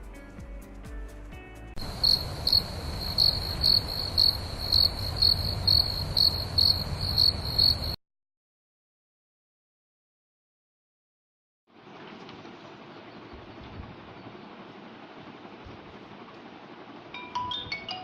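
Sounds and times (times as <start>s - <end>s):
crickets chirping: 1.8s - 8.0s
low rumbling background: 1.8s - 8.0s.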